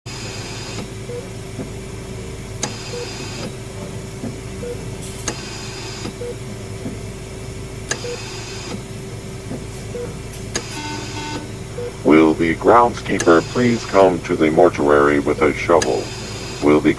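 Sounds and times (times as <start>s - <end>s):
electrical hum: 0.1s - 16.9s
high mechanical whirr: 0.1s - 16.9s
soft electronic beep: 9.9s - 12.0s.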